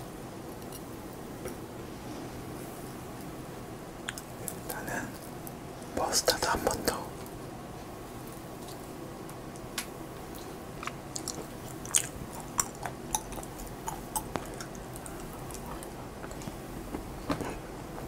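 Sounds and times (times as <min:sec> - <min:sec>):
close chewing mouth sounds: 0:10.3 - 0:16.6.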